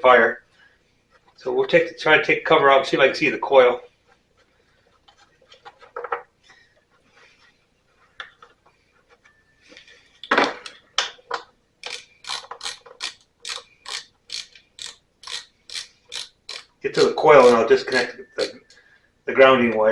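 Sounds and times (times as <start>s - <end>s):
ratchet wrench ratcheting: 11.8s - 18.6s.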